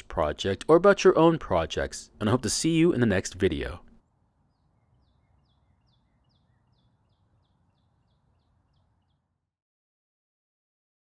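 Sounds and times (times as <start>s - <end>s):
faint bird song: 3.4s - 9.6s.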